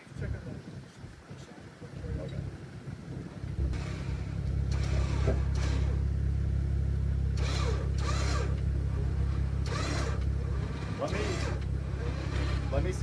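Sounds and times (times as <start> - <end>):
vehicle engine idling: 1.7 - 13.0.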